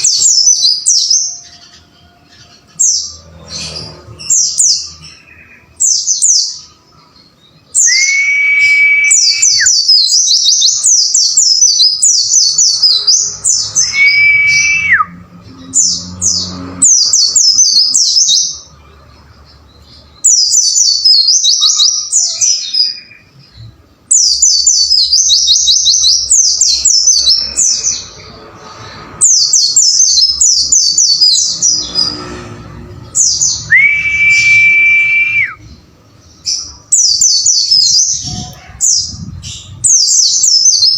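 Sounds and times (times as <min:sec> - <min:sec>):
long steady bird whistle: 0:07.8 - 0:10.8, 0:13.8 - 0:15.2, 0:33.7 - 0:35.7.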